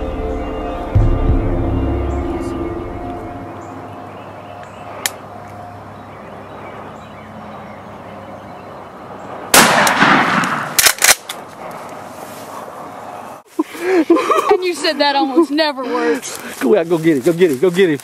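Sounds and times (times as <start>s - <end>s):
loud shotgun blast: 9.5s - 11.1s.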